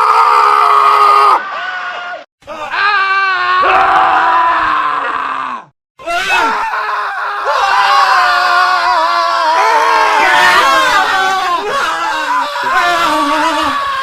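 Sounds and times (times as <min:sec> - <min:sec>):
men screaming: 0:00.0 - 0:14.0.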